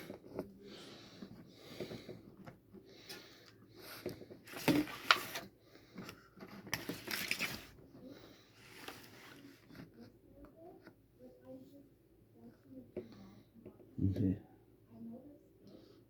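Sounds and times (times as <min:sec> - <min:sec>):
paper rustling and crinkling: 0:04.1 - 0:10.0.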